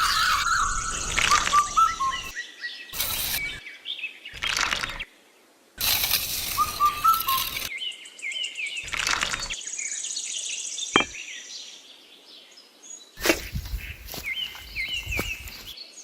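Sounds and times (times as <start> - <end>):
birds chirping: 0.0 - 3.6, 13.2 - 15.8
brief scraping noises: 3.0 - 3.6, 5.8 - 7.7.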